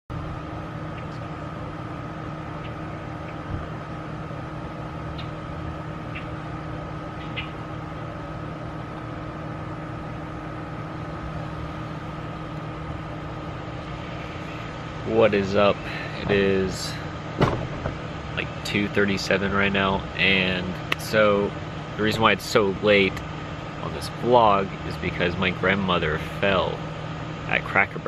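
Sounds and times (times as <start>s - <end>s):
high whine: 0.1s - 28.0s
mechanical hum: 0.1s - 28.0s.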